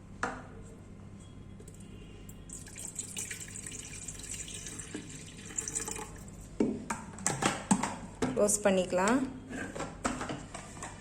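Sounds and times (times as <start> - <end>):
water running into a kettle: 2.5 - 6.3.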